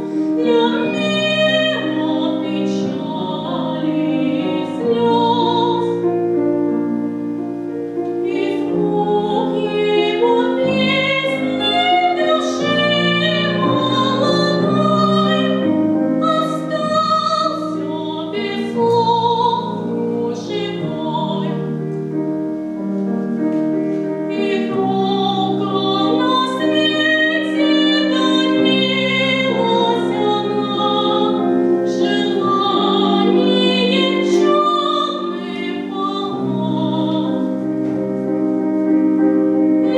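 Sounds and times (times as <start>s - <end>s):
piano accompaniment: 0.0s - 39.9s
woman singing operatically: 0.4s - 6.0s, 8.2s - 21.7s, 24.3s - 37.6s.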